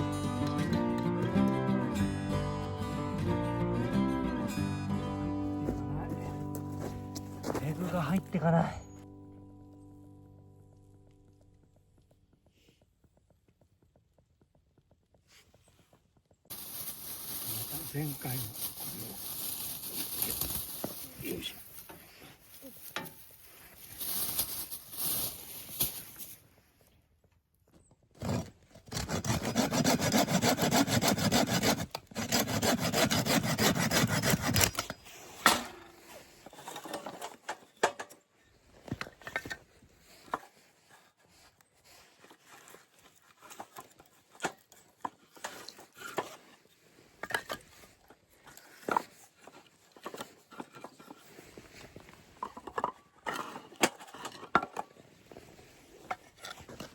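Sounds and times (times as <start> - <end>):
hand saw cutting wood: 28.2 - 37.2, 41.9 - 47.6.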